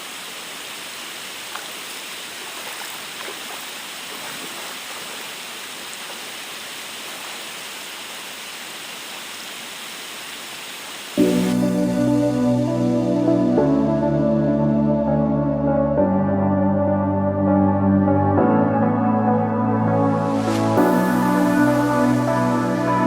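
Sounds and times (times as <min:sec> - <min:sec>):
waterfall rushing: 0:00.0 - 0:13.0, 0:20.2 - 0:23.0
music: 0:11.2 - 0:23.0.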